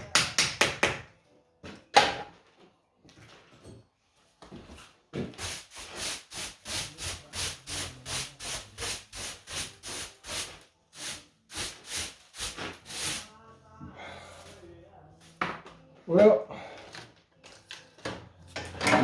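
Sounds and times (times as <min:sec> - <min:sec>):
brush scrubbing stone: 0:05.4 - 0:13.3.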